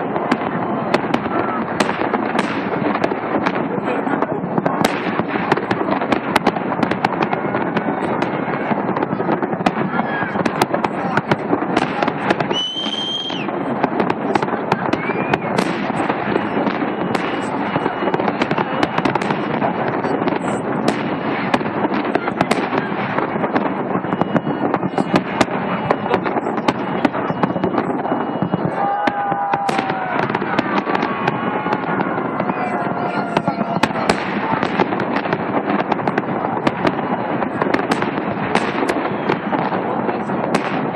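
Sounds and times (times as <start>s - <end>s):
fireworks crackling and popping: 0.0s - 40.9s
high whistle: 12.5s - 13.5s.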